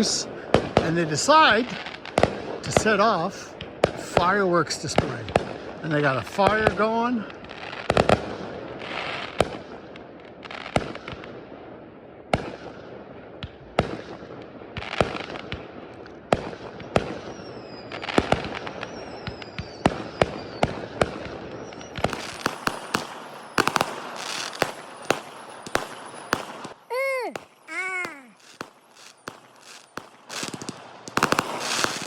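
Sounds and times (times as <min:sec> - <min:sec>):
fireworks bangs: 0:00.0 - 0:06.9, 0:13.4 - 0:32.0
fireworks crackling: 0:00.0 - 0:09.7, 0:13.4 - 0:32.0
fireworks whistles: 0:16.4 - 0:32.0.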